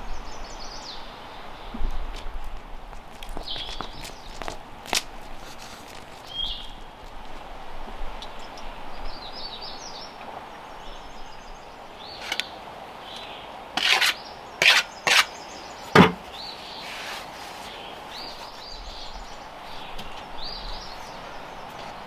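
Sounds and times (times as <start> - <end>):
songbirds chirping: 0.0 - 2.4, 3.3 - 4.9, 5.8 - 7.1, 8.1 - 22.0
tool scraping: 12.2 - 12.5, 13.8 - 18.6
knock: 16.0 - 16.2.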